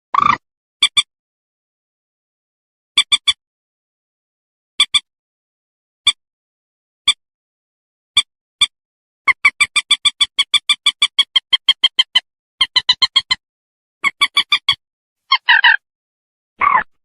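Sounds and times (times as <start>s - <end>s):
moorhen clicking calls: 9.3s - 13.4s, 14.0s - 15.8s
harsh moorhen call: 14.0s - 15.8s, 16.6s - 16.9s.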